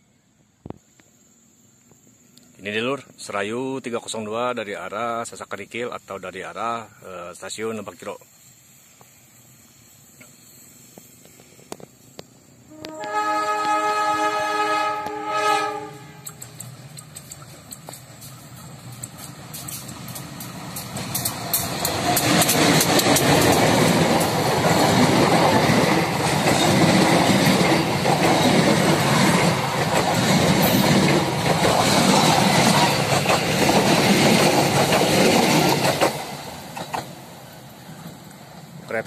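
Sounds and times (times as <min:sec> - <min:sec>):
train wheels clattering over rails: 0:16.2 - 0:38.8.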